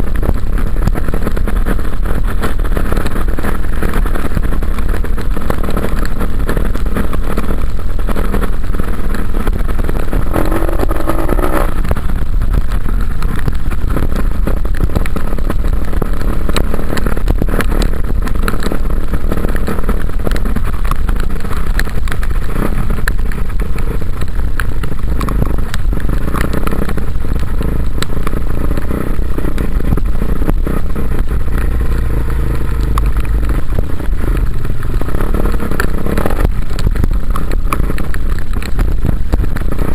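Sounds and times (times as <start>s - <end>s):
heavy low rumble: 0.0s - 39.9s
dirt bike engine revving: 0.9s - 12.1s, 24.9s - 36.4s.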